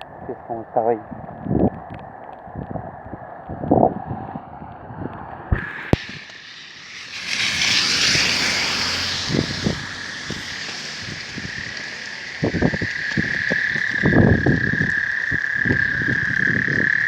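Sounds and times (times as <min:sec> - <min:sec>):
vehicle passing by: 0:05.6 - 0:15.8
sharp clicks: 0:09.3 - 0:17.0.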